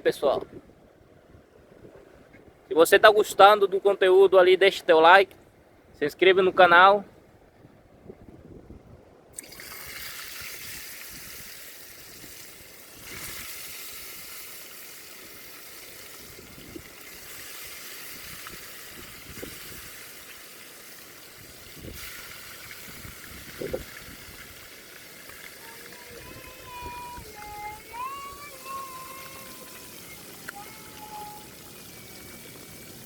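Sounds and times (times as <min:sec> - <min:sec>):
fish frying in hot oil: 0:09.4 - 0:27.5, 0:28.7 - 0:33.0.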